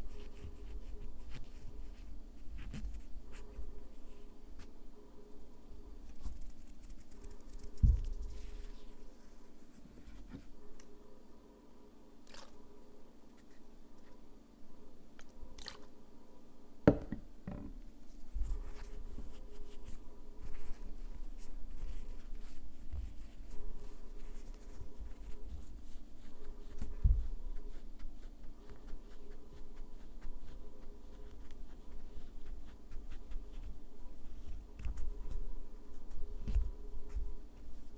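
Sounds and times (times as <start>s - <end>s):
dull knock: 16.9s - 17.7s.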